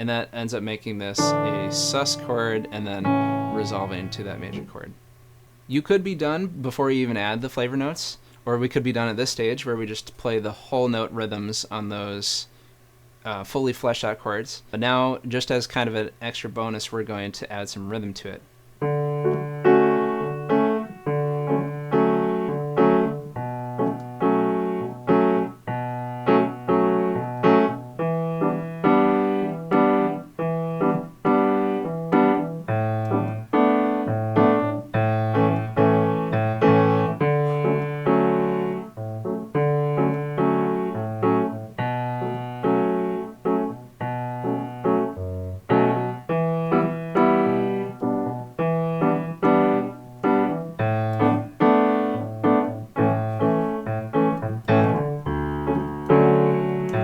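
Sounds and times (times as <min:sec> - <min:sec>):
piano playing chords: 0:01.0 - 0:05.0, 0:18.8 - 0:57.0.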